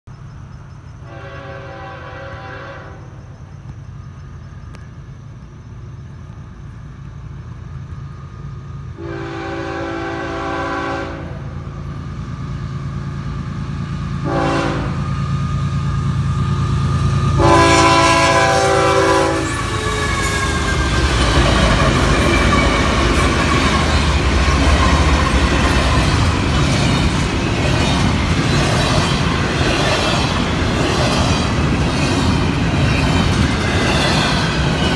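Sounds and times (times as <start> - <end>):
rushing wheel and rail noise: 0.1 - 34.9
locomotive horn blasts: 1.1 - 3.2, 9.0 - 11.6, 14.2 - 15.1, 17.4 - 21.0
engine rumble: 3.0 - 34.9.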